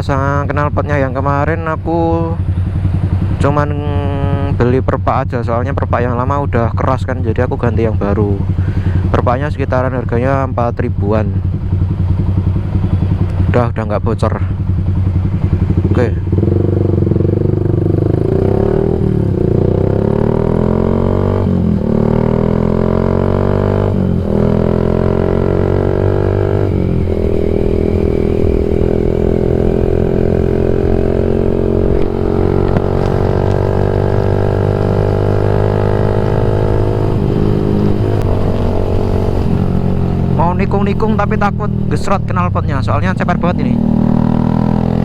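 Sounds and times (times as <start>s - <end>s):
motorcycle engine accelerating: 0.0s - 5.2s, 7.6s - 13.6s, 14.3s - 45.0s.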